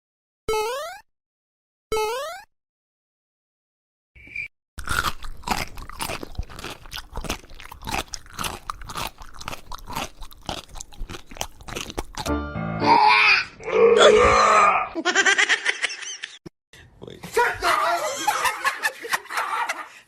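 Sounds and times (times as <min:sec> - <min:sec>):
animal crunchy chewing: 0:04.8 - 0:12.3.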